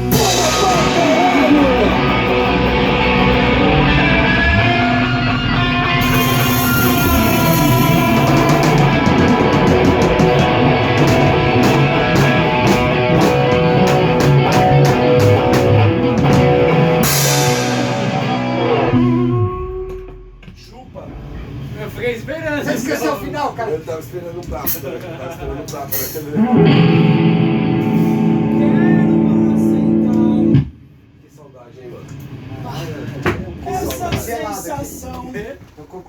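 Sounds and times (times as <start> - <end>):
electric guitar: 0.0 - 20.6, 26.4 - 30.8
bass guitar: 0.0 - 22.0, 26.4 - 30.8
drum kit: 0.0 - 22.2, 25.9 - 30.8
cymbal hits: 5.9 - 9.0, 17.0 - 18.7.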